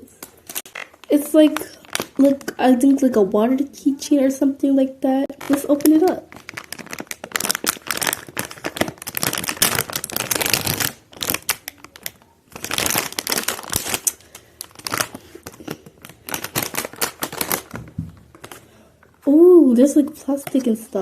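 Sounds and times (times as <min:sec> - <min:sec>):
packaging crinkling and tearing: 0:00.2 - 0:02.6, 0:05.3 - 0:19.2.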